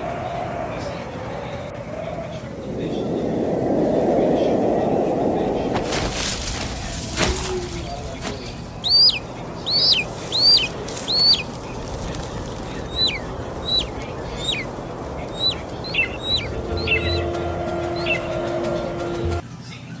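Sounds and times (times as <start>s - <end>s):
bird calling with dropping notes: 7.2s - 18.9s.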